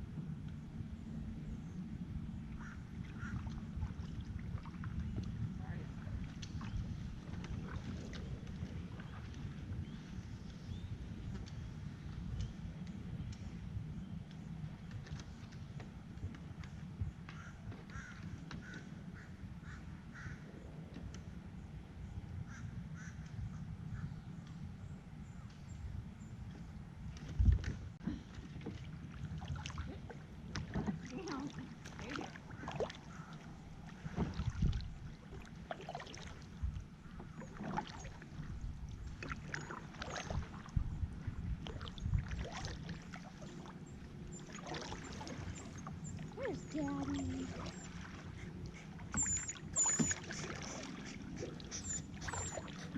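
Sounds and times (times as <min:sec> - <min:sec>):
kayak paddle splashing: 0:02.5 - 0:12.1, 0:27.1 - 0:52.9
bird calling: 0:44.3 - 0:52.9.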